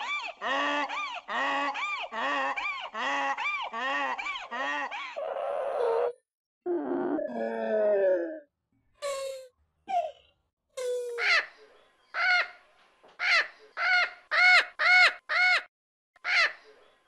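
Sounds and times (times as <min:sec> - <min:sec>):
low moaning call: 0:06.7 - 0:08.5.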